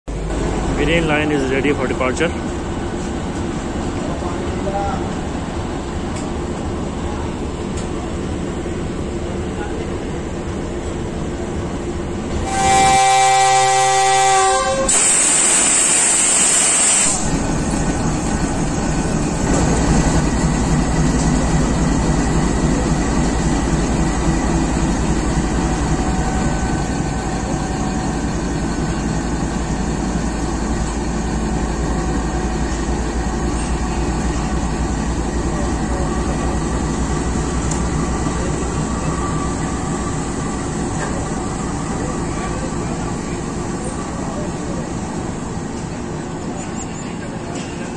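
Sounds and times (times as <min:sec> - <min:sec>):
train horn: 0:12.3 - 0:17.2
diesel engine rumble: 0:17.2 - 0:47.6.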